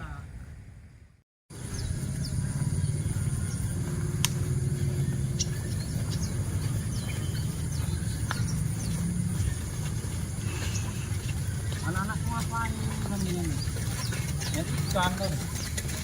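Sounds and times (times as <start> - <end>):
small birds chirping: 1.5 - 16.0
low rumble: 1.6 - 11.9.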